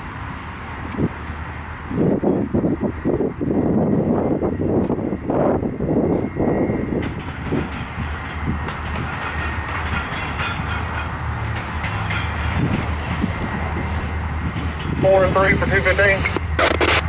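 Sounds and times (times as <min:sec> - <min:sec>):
diesel locomotive engine drone: 0:00.0 - 0:17.0
train wheels rumbling on rails: 0:00.0 - 0:17.0.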